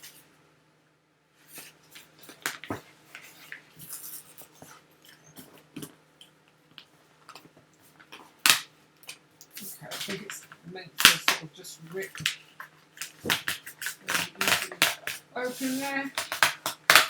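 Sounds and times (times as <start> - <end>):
sharp snap: 11.0 - 11.5.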